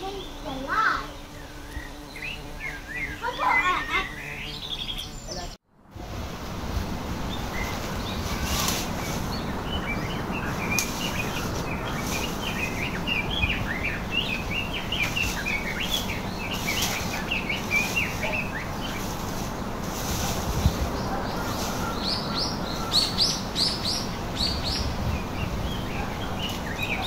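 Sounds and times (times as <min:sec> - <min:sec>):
small birds chirping: 0:00.0 - 0:05.6, 0:07.2 - 0:27.0
steady background hiss: 0:06.0 - 0:27.0.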